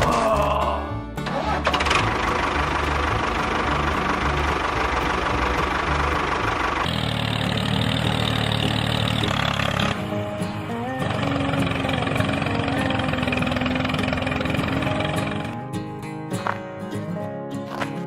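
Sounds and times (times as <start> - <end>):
machine engine running: 1.2 - 10.3, 11.0 - 15.6.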